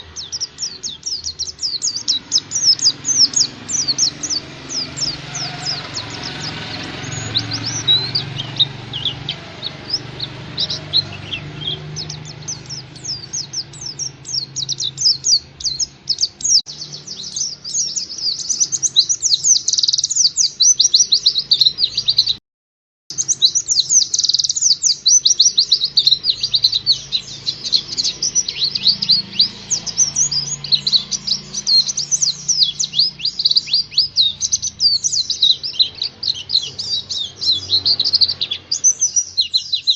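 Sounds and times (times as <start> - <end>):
bird singing fast chatter: 0.0 - 22.4, 23.1 - 39.9.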